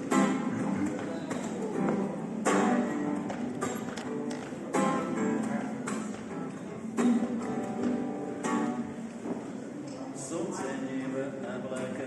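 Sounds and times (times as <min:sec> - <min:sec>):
acoustic guitar strumming chords: 0:00.0 - 0:09.2.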